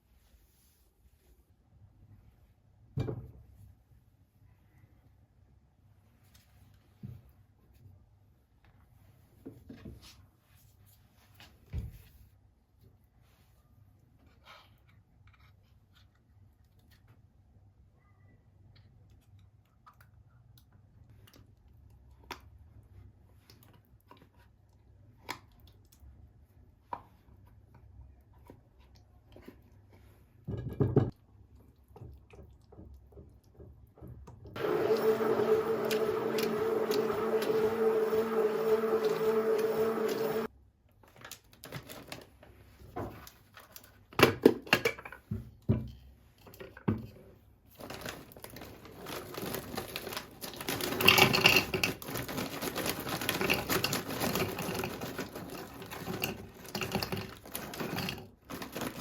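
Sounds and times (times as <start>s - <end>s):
motor hum: 34.6s - 40.5s
objects being handled: 34.6s - 59.0s.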